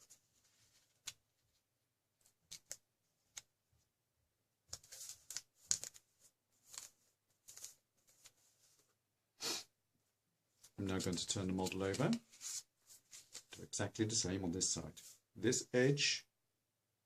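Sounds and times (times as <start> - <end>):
paper folding and crinkling: 0.0 - 3.6, 4.7 - 9.0, 10.6 - 13.7.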